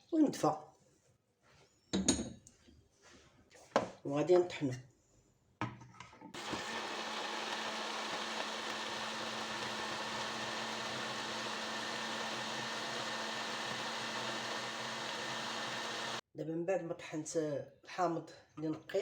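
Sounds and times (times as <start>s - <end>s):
electric blender running: 6.4s - 16.2s.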